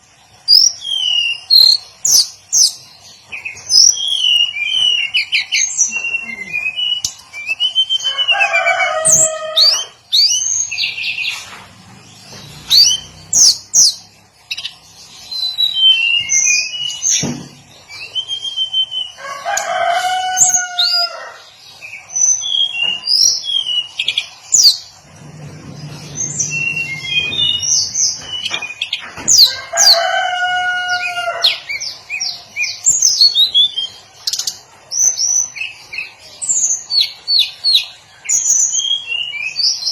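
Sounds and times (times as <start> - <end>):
bird singing high chirps: 0.5 - 11.4, 12.3 - 19.2, 21.9 - 24.9, 25.9 - 30.0.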